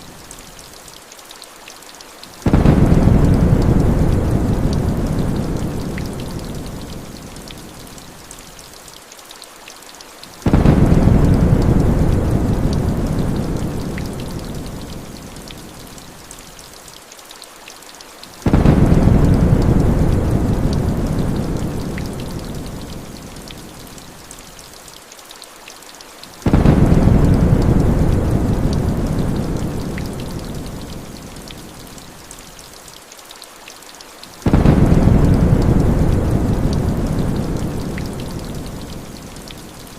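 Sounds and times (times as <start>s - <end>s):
heavy rain falling: 0.0s - 39.9s
deep thunder rumbles: 2.4s - 6.9s, 10.5s - 14.9s, 18.5s - 22.9s, 26.4s - 30.9s, 34.4s - 39.0s.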